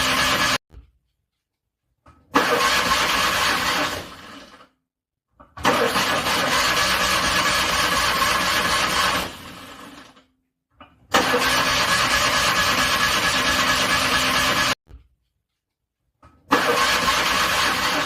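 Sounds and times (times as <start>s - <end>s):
car engine cranking: 2.3s - 4.4s, 5.6s - 9.7s, 11.1s - 14.8s, 16.5s - 18.0s.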